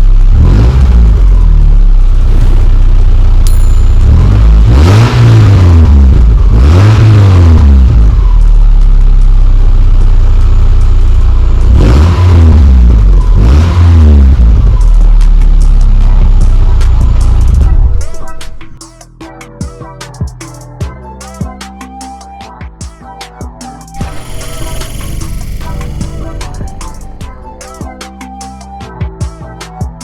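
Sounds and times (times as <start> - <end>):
car engine revving: 0.3 - 8.0, 11.4 - 15.1, 24.0 - 27.9.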